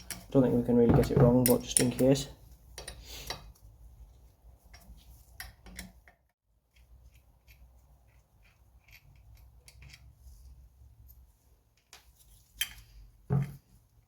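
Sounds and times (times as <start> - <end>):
hand tools clicking and tapping: 0.0 - 3.6.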